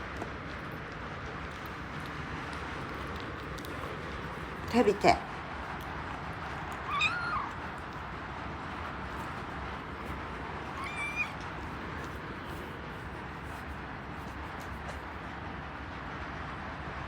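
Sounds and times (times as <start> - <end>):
kitten meowing: 6.7 - 7.8, 10.6 - 11.5.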